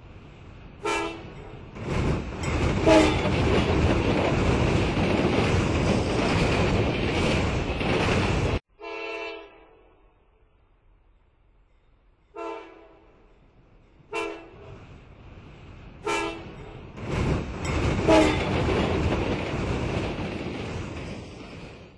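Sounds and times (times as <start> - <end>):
train rumbling: 0.0 - 8.7, 10.8 - 21.9
train horn blasts: 0.8 - 1.3, 2.8 - 3.2, 8.7 - 10.4, 12.3 - 13.2, 14.1 - 14.7, 16.0 - 16.6, 18.0 - 18.6.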